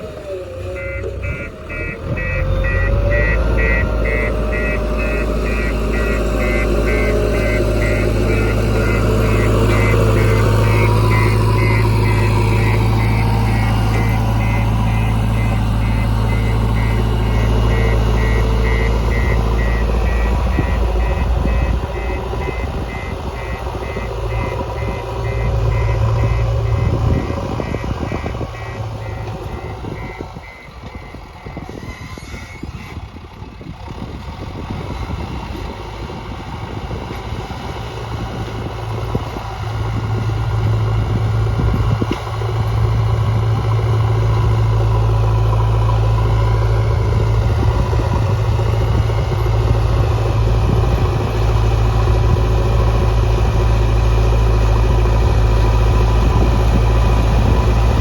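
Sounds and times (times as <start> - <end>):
diesel engine under load: 0.0 - 58.0
reversing alarm beeping: 0.7 - 33.0.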